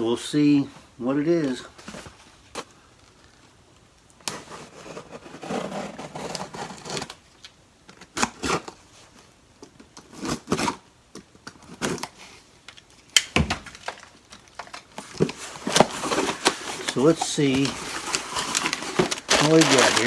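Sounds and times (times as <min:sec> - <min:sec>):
cardboard packaging rustling: 0:04.2 - 0:10.9, 0:11.5 - 0:20.0.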